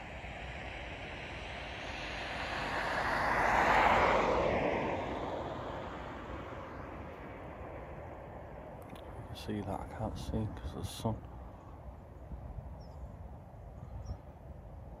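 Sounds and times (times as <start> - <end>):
vehicle passing by whooshing: 0.0 - 8.6.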